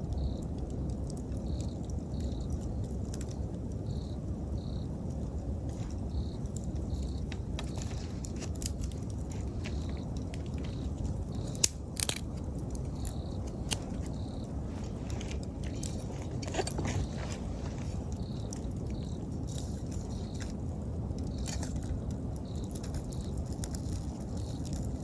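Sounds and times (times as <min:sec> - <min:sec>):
bonfire crackling and popping: 0:00.0 - 0:25.0
insect chirping: 0:00.0 - 0:25.0.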